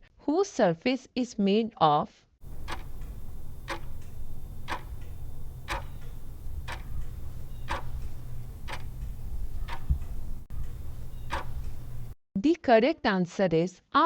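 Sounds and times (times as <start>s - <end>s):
clock ticking: 2.4s - 12.2s
low steady hum: 2.4s - 12.2s.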